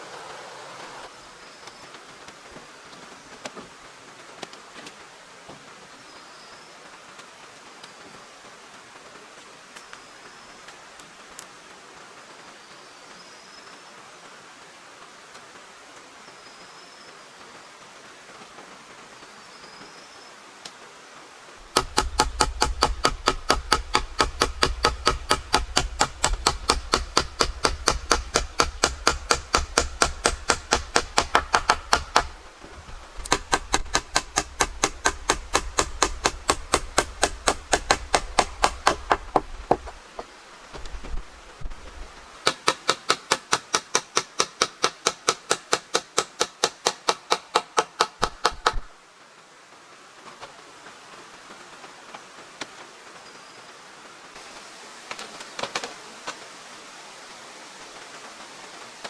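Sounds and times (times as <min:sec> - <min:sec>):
hammer striking: 0:21.6 - 0:40.3, 0:42.5 - 0:48.9.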